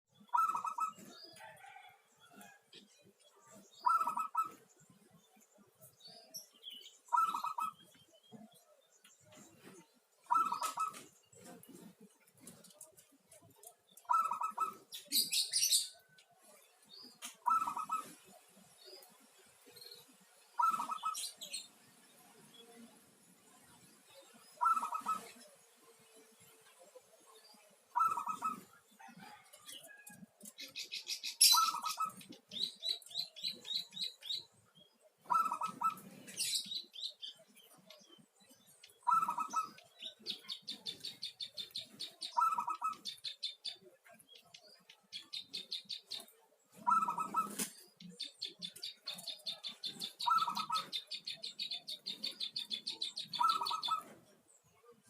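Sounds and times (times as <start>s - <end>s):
bird chirping fast: 0.1s - 1.2s, 3.5s - 4.7s, 6.4s - 8.5s, 9.2s - 11.8s, 13.9s - 16.0s, 17.1s - 18.3s, 20.6s - 21.7s, 24.2s - 25.5s, 27.9s - 28.8s, 30.6s - 34.6s, 35.2s - 54.1s
dove cooing: 0.3s - 1.9s, 3.8s - 4.6s, 7.1s - 7.8s, 10.3s - 11.9s, 14.1s - 15.8s, 17.4s - 18.2s, 20.6s - 21.4s, 24.6s - 25.5s, 27.9s - 30.0s, 30.7s - 34.4s, 35.2s - 36.7s, 39.0s - 43.3s, 46.8s - 47.7s, 48.6s - 54.1s.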